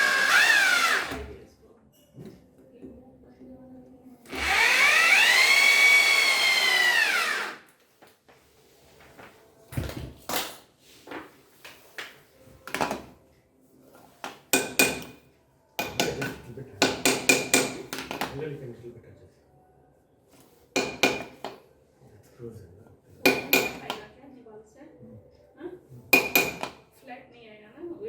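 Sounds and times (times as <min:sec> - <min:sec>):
small electric motor whining: 0:04.3 - 0:07.6.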